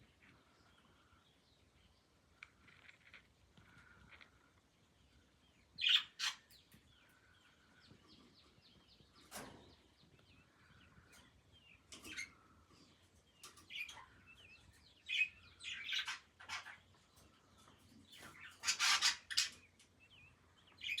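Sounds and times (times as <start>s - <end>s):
baby budgerigars chirping: 5.7s - 9.4s, 10.0s - 21.0s.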